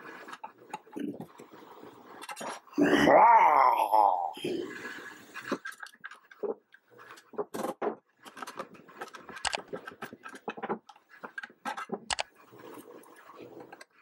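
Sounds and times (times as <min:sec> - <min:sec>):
clicks and knocks of metal parts: 0:05.5 - 0:12.3.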